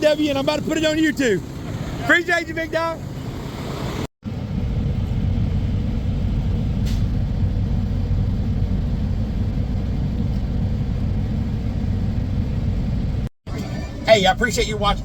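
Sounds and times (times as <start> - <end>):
road noise: 0.0 - 15.0
truck engine rumble: 0.0 - 15.0.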